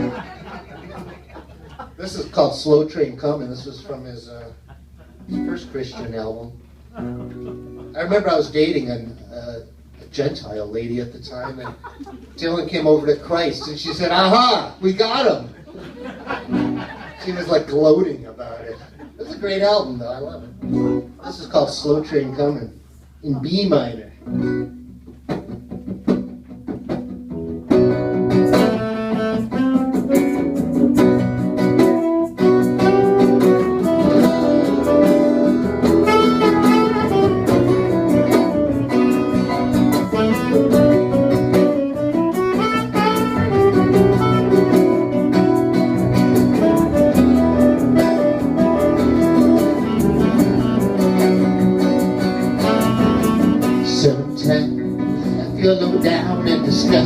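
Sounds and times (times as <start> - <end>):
live band playing: 0.0 - 10.0, 12.1 - 18.0, 19.2 - 57.0
strummed guitars: 0.0 - 22.6, 23.4 - 57.0
lead instrument melody: 27.3 - 57.0.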